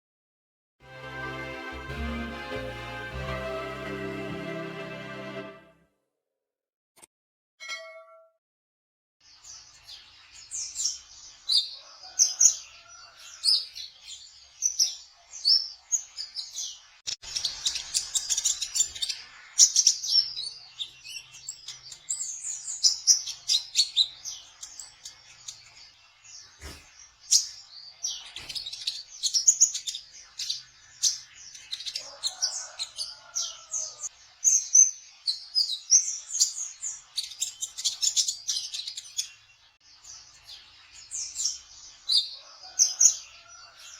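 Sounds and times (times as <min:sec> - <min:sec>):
bird twittering song: 0:09.2 - 0:43.9.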